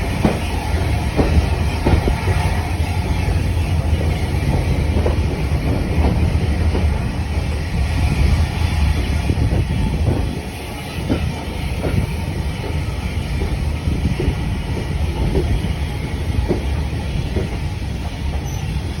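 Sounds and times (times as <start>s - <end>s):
wheels clicking over rail joints: 0.0s - 7.2s, 11.0s - 19.0s
train wheels rumbling on track: 0.0s - 19.0s.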